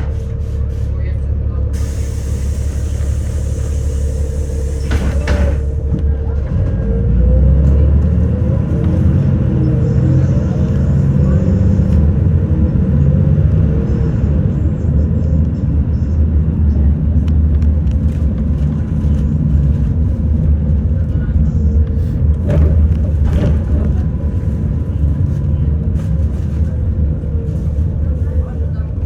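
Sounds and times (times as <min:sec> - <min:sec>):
bus engine rumble: 0:00.0 - 0:29.0
bus air hiss: 0:01.8 - 0:05.7.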